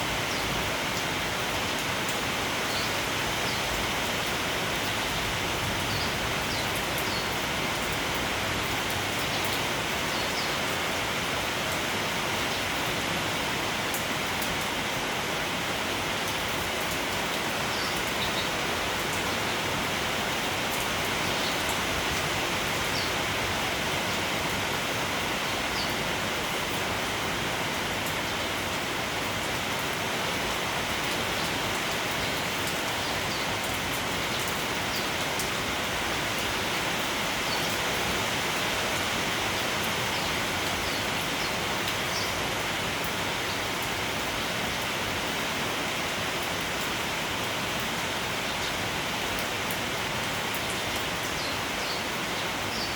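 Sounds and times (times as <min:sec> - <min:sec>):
rain falling on foliage: 0:00.0 - 0:52.9
sparrows chirping: 0:21.0 - 0:22.0, 0:40.0 - 0:42.4, 0:51.3 - 0:52.9.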